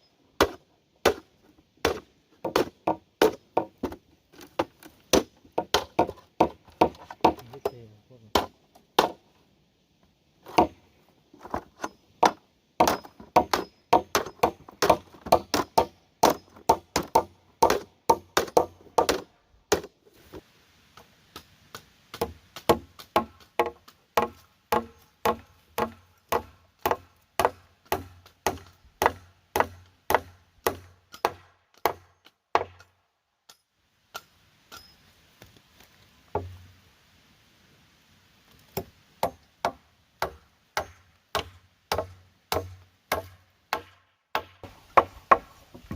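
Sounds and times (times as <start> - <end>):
tool striking wood: 1.8 - 7.7, 12.2 - 19.9, 21.7 - 32.9, 38.8 - 45.9.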